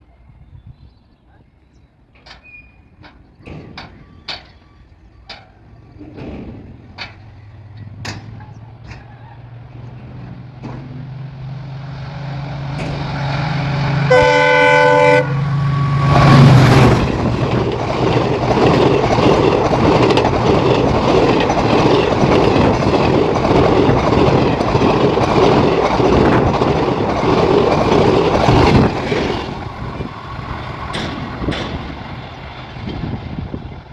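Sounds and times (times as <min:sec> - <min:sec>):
train wheels clattering on rail: 0:02.1 - 0:14.9, 0:15.7 - 0:33.9
train horn: 0:13.9 - 0:17.2.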